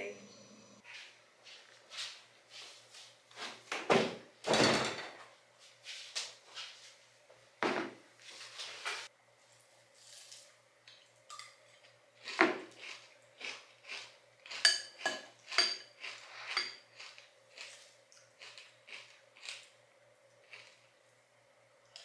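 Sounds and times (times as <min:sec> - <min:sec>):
spoon clinking glass bowl: 0:14.6 - 0:15.9.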